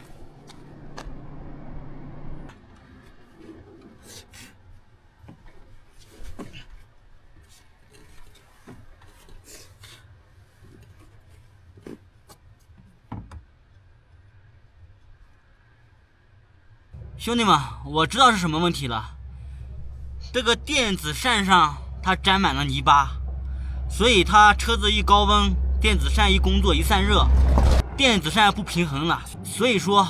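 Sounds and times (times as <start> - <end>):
low steady hum: 17.0 - 30.0.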